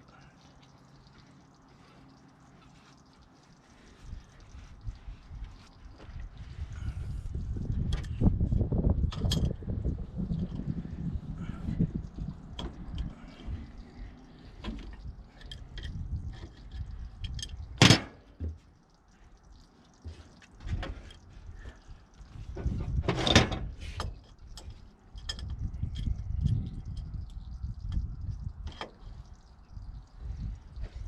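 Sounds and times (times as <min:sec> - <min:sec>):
low rumble: 0:04.0 - 0:17.7.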